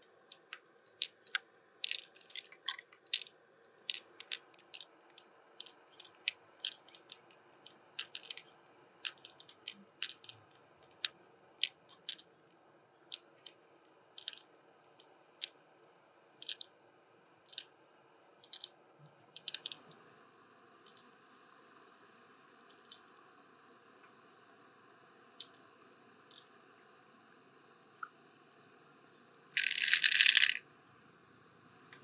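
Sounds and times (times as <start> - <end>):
faint squishing: 0.3 - 3.3, 3.9 - 12.2
sharp clicks and taps of shell: 8.0 - 8.4.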